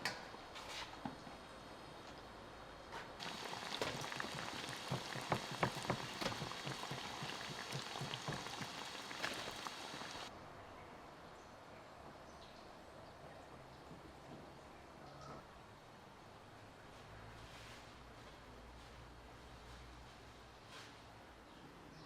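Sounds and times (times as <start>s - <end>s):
hot oil sizzling and popping: 3.2s - 10.3s.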